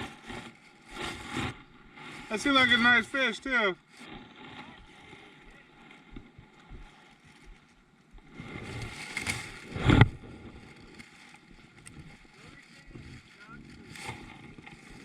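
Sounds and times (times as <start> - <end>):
rustling: 0.0 - 15.0.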